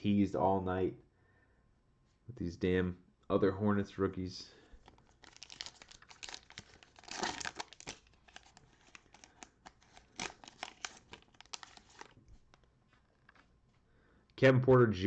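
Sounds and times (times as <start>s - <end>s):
cellophane wrapper crinkling and tearing: 4.8s - 13.5s.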